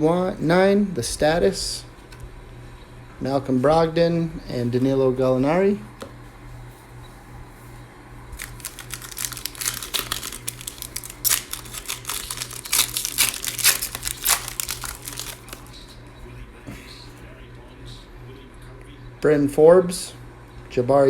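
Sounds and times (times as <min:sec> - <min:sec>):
plastic wrapper tearing and crinkling: 0:08.4 - 0:15.7.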